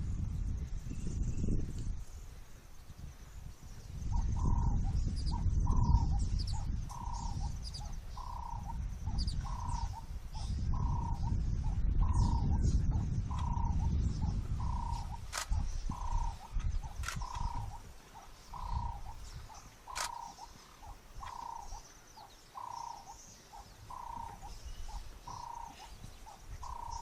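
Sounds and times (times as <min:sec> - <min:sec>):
high bird chirps: 0:12.0 - 0:27.0.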